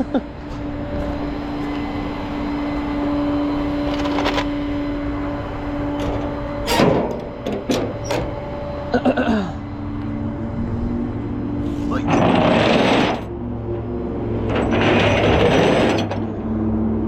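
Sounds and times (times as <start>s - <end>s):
truck engine whine: 0.0s - 17.0s
metal clanks: 6.0s - 8.4s, 14.4s - 16.4s.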